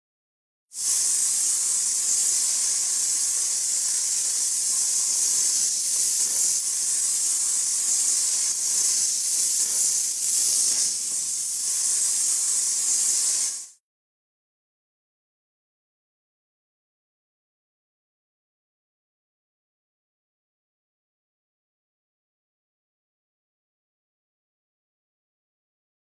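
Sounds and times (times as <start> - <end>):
high-pitched hiss: 0.8 - 13.8.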